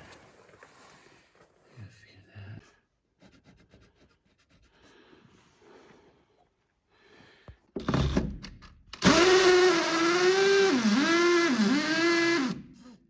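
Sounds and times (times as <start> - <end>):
power drill running: 9.0 - 12.8.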